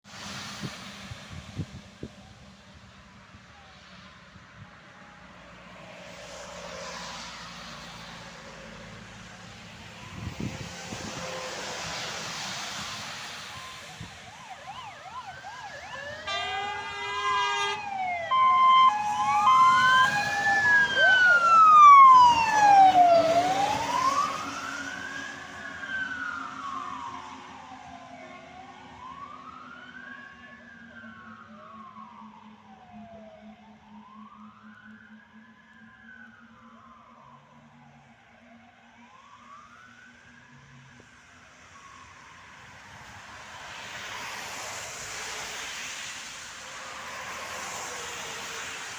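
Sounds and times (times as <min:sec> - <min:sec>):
vehicle noise: 0:00.0 - 0:48.9
wailing siren: 0:01.0 - 0:48.9
air horns blasting: 0:15.9 - 0:18.5.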